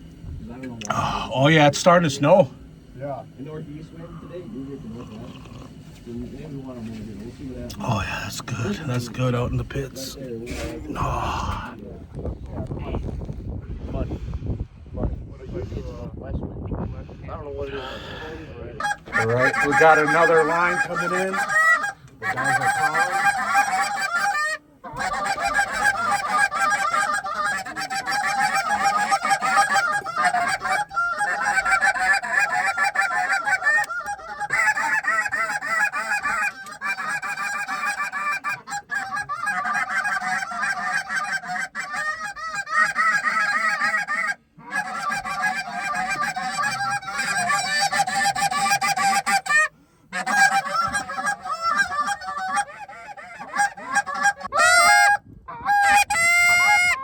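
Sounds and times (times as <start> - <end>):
geese honking and clucking: 0.8 - 2.5, 4.0 - 11.6, 17.8 - 57.0
goose calls blown by hunters: 18.8 - 57.0.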